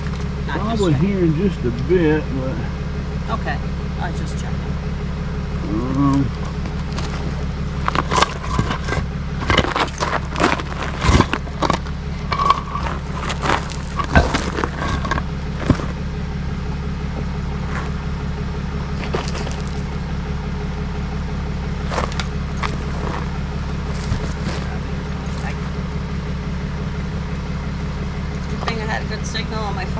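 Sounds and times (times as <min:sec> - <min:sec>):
vehicle engine idling: 0:00.0 - 0:29.9
sharp knocks and scrapes: 0:06.4 - 0:16.2, 0:17.2 - 0:18.0, 0:19.0 - 0:20.0, 0:21.8 - 0:25.8.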